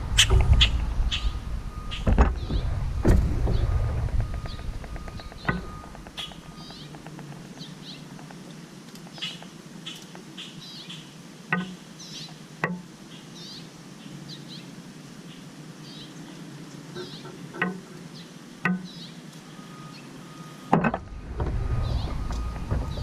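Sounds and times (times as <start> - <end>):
small birds chirping: 0.0 - 23.0
sharp knocks: 1.9 - 7.7.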